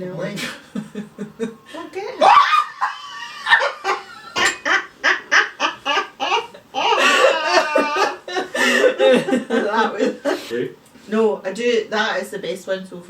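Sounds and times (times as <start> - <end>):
loud laughter: 2.2 - 10.4.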